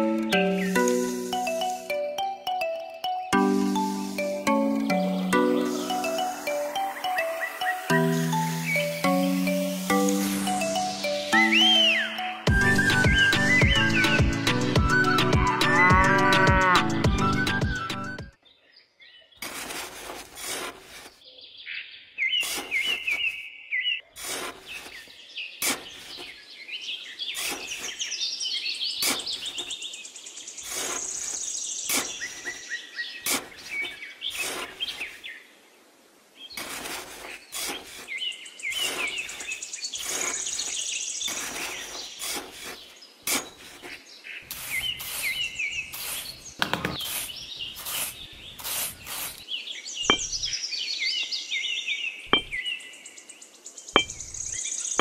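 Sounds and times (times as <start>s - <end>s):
birds chirping: 0.0s - 19.5s, 21.2s - 55.0s
trowel scraping sand: 8.4s - 10.8s, 19.4s - 21.2s, 22.4s - 23.4s, 24.1s - 26.4s, 27.3s - 28.1s, 29.0s - 29.8s, 30.6s - 32.6s, 33.2s - 35.2s, 36.5s - 49.5s, 50.1s - 50.5s, 52.3s - 52.6s.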